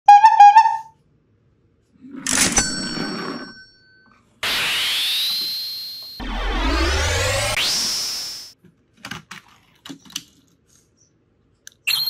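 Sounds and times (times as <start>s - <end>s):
rising whistling sweep: 4.4s - 8.6s
bright ringing ding: 5.3s - 6.2s.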